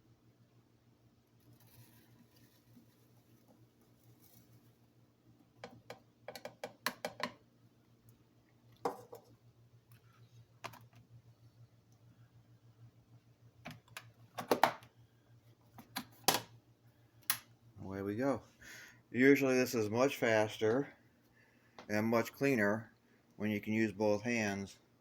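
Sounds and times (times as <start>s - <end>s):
plastic container clicks and knocks: 5.6s - 7.4s.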